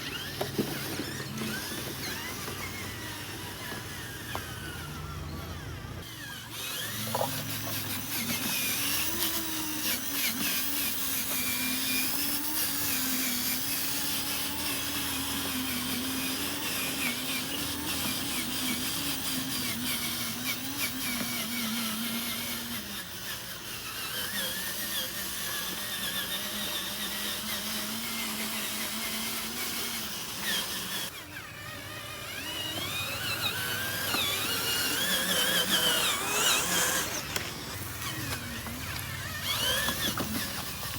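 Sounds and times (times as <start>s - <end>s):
small electric motors whining: 0.0s - 40.9s.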